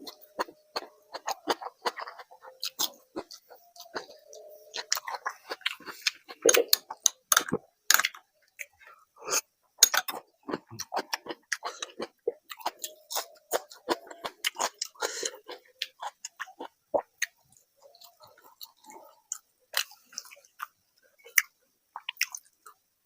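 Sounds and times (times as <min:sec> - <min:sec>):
wet chewing: 0:00.0 - 0:22.8.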